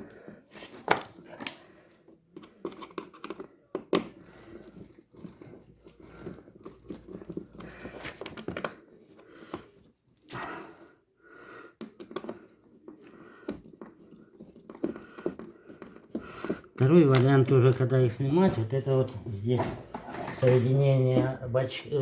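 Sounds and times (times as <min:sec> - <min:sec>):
metal and plastic parts clicking: 0:02.4 - 0:08.8
scraping and rustling: 0:12.7 - 0:22.0.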